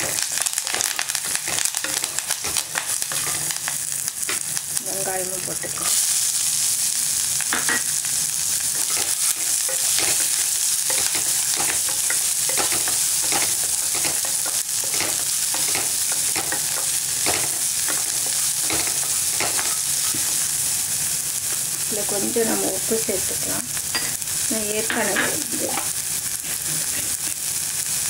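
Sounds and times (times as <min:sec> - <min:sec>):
spoon scraping pan: 0:00.0 - 0:04.4, 0:08.7 - 0:20.6
onion sizzling in hot oil: 0:00.0 - 0:28.0.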